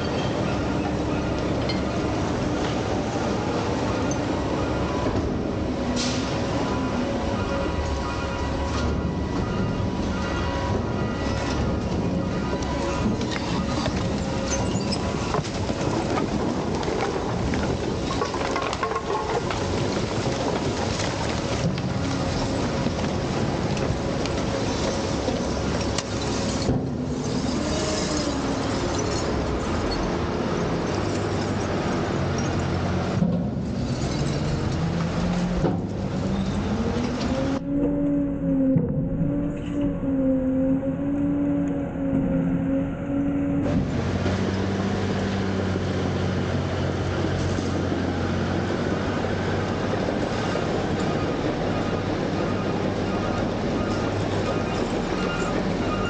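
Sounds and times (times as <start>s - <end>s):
garbage truck diesel engine: 0.0s - 56.0s
wavering hydraulic whine: 34.1s - 44.7s.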